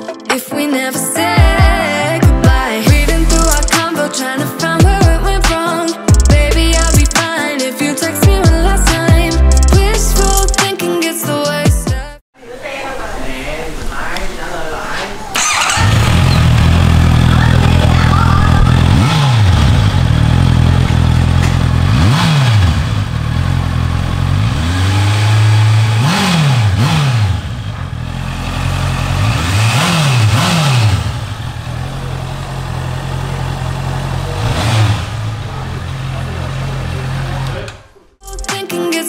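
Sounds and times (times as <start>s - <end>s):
motorcycle throttle blips: 15.3s - 38.1s
motorcycle engine idling: 15.4s - 25.2s, 27.3s - 38.0s.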